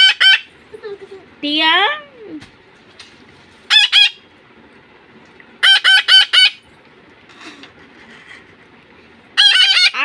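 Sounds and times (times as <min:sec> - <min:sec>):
parrot calling loudly: 0:00.0 - 0:00.5, 0:03.7 - 0:04.3, 0:05.6 - 0:06.6, 0:09.4 - 0:10.0.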